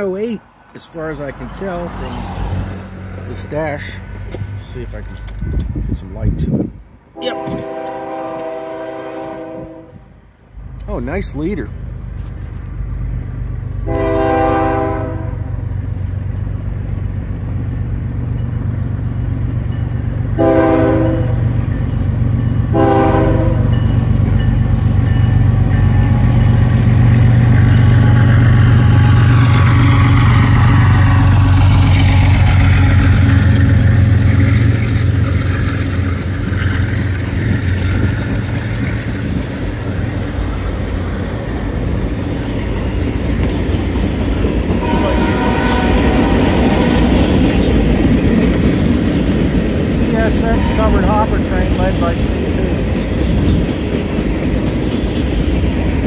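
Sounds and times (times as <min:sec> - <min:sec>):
diesel engine rumble: 0:00.0 - 0:07.8, 0:23.9 - 0:56.0
locomotive horn blasts: 0:07.2 - 0:10.1, 0:13.8 - 0:15.6, 0:20.4 - 0:21.5, 0:22.7 - 0:23.8, 0:44.7 - 0:47.4, 0:50.2 - 0:51.4
freight cars rattling on rails: 0:21.4 - 0:56.0.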